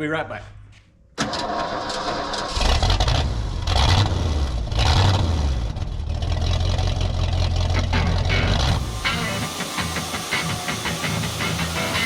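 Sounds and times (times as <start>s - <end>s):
engine rumbling: 1.4s - 9.6s.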